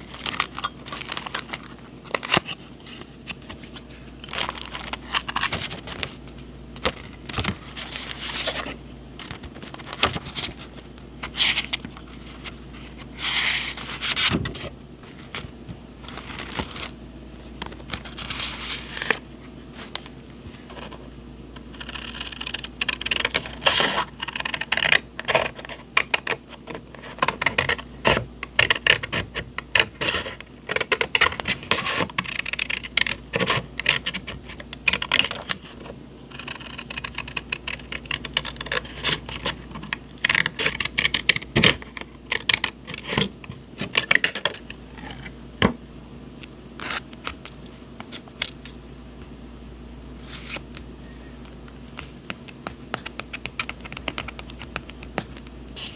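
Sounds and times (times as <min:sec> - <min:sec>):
paper rustling and sliding: 0:00.0 - 0:17.0, 0:17.6 - 0:21.0, 0:50.2 - 0:50.7.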